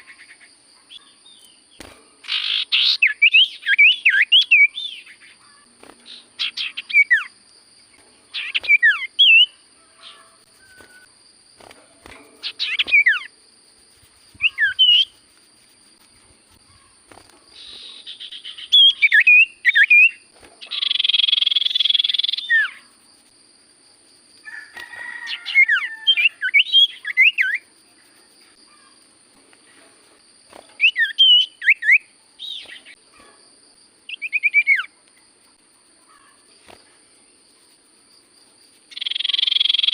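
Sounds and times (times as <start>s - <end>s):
bird whistling sharp notes: 8.4s - 11.1s, 14.4s - 15.1s.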